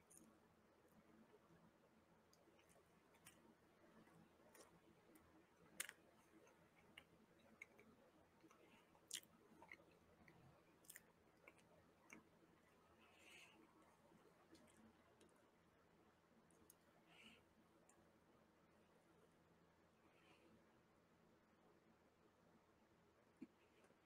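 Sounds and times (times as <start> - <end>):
chewing with mouth clicks: 2.4 - 12.3.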